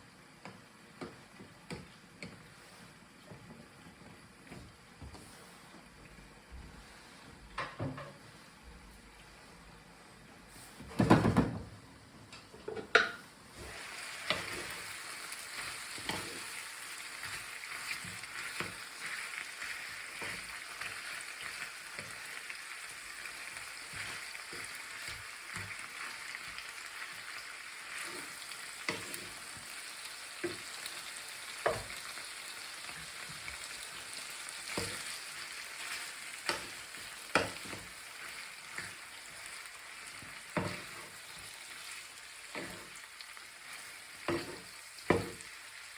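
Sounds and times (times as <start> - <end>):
food sizzling in a pan: 12.6 - 45.9.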